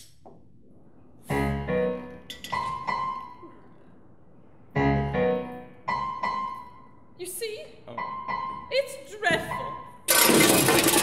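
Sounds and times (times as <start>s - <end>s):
acoustic piano chords and notes: 1.2s - 7.2s, 7.8s - 10.1s.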